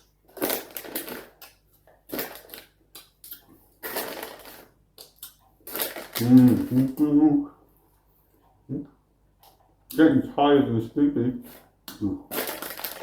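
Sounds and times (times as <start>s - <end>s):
chewing and wet mouth noises: 0.8s - 6.6s.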